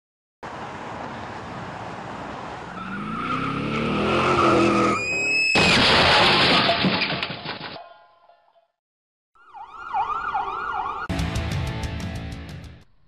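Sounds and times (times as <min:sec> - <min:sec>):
tyres skidding: 0:00.4 - 0:07.7
car engine revving: 0:02.8 - 0:05.0
loud crash: 0:05.5 - 0:07.8.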